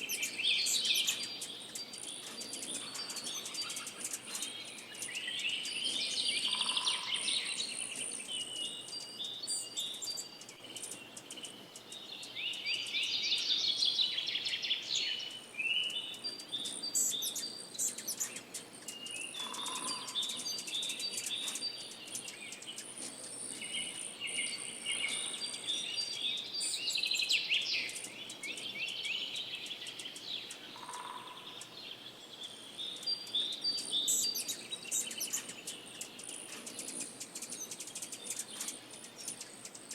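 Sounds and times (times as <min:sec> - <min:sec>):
songbird trilling: 0:00.0 - 0:31.8
bird chirps: 0:00.0 - 0:39.9.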